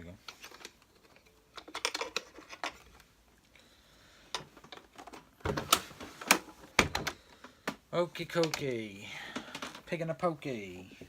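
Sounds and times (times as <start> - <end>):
vacuum cleaner parts clicking: 4.3 - 8.8.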